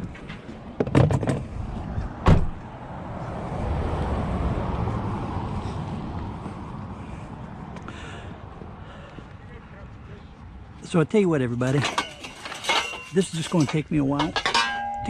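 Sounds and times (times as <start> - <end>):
rushing vehicle noise: 0.0 - 15.0
scrap items knocking and clattering: 11.7 - 15.0.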